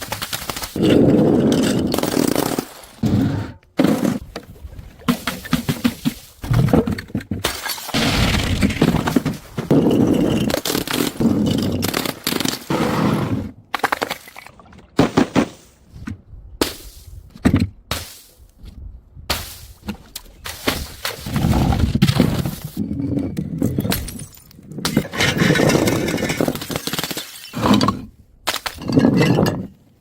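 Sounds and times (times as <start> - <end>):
glass bottles shattering: 23.8 - 28.0.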